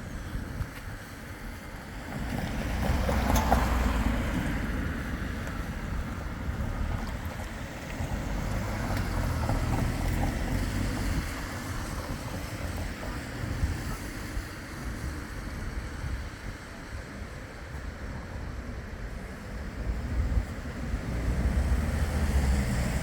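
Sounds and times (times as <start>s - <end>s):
tram rumbling past: 0.0s - 23.0s
wind noise on microphone: 0.0s - 23.0s.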